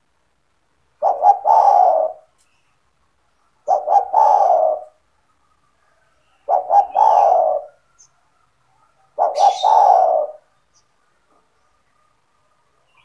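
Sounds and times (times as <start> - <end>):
dove cooing: 1.0 - 2.4, 3.6 - 8.1, 8.8 - 10.5.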